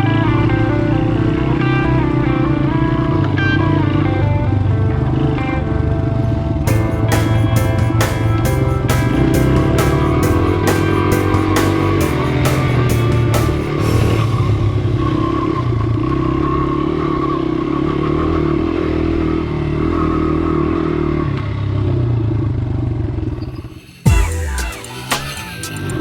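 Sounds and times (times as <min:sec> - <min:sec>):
dirt bike engine running: 0:06.7 - 0:22.9.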